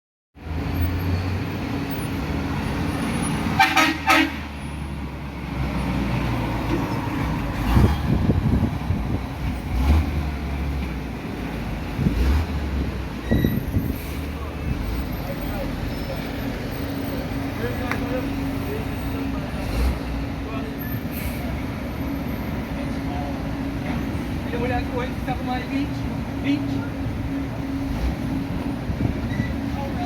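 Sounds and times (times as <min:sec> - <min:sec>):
short horn toots: 0:03.6 - 0:04.5.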